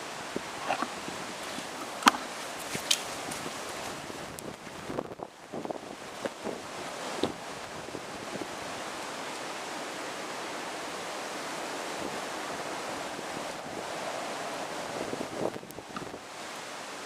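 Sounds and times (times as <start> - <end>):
wind buffeting microphone: 0.0 - 8.8, 11.9 - 16.5
gusty wind: 0.0 - 17.0
heavy rain: 0.0 - 17.0.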